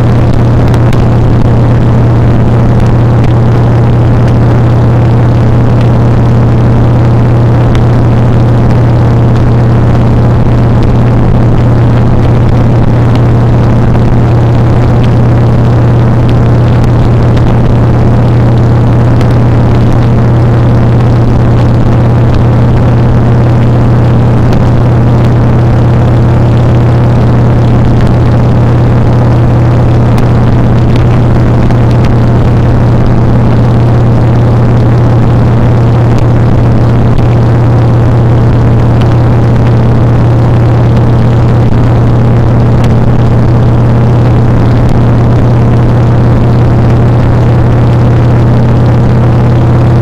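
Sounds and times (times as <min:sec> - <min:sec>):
motorcycle engine droning: 0:00.0 - 0:50.0.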